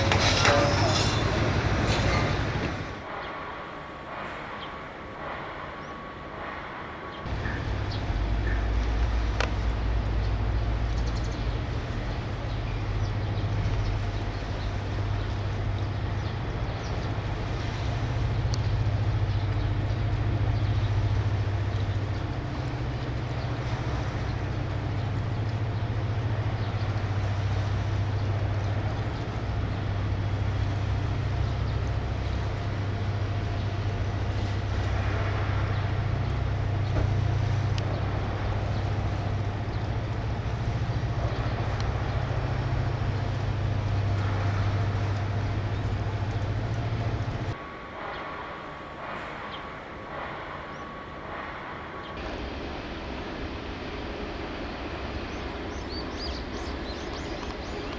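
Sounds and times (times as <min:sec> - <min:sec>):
low mechanical hum: 0:07.3 - 0:50.5.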